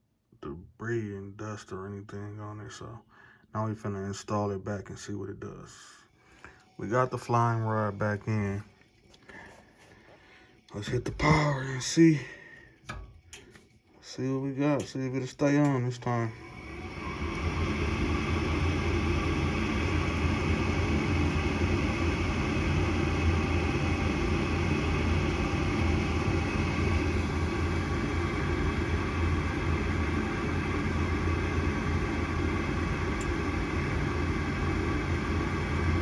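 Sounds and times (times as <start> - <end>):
furnace motor humming: 9.2 - 36.0.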